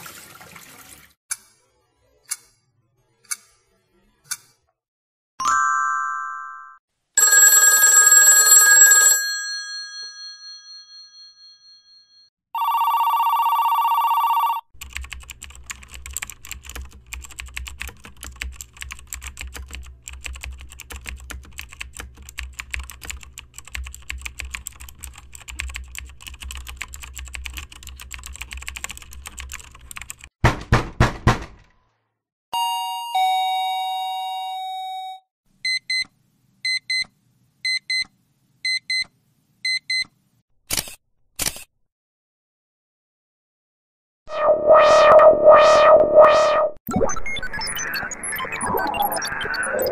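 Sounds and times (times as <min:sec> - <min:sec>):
telephone bell ringing: 0:05.4 - 0:14.7, 0:32.6 - 0:35.2
buzzing phone ring: 0:07.2 - 0:10.1, 0:12.6 - 0:14.6
typing on computer keyboard: 0:14.8 - 0:30.3
digital alarm clock beeping: 0:36.7 - 0:37.1, 0:37.7 - 0:38.1, 0:38.7 - 0:39.1, 0:39.7 - 0:40.1.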